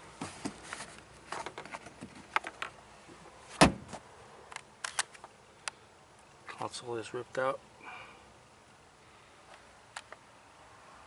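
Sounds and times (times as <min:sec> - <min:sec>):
truck door clicks and rustling: 0:03.5 - 0:04.0.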